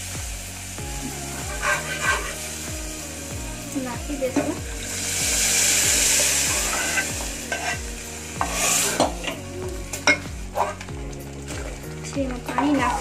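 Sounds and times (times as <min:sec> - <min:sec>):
food sizzling in hot oil: 0:00.0 - 0:13.0
ladle clinking and scraping pot: 0:06.6 - 0:07.8, 0:08.4 - 0:10.9.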